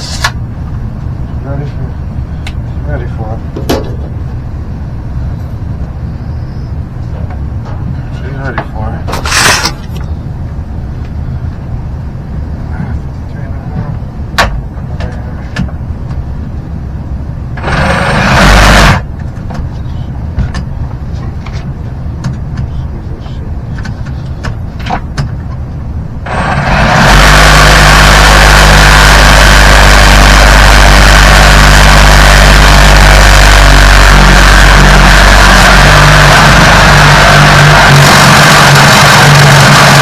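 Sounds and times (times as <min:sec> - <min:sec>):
battery saw cutting pipe: 0:17.6 - 0:19.0, 0:26.3 - 0:40.0.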